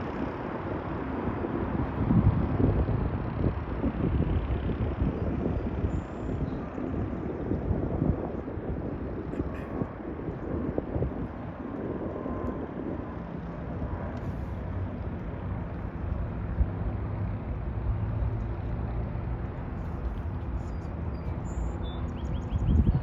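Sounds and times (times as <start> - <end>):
outdoor noise: 0.0 - 23.0
engine humming: 11.2 - 23.0.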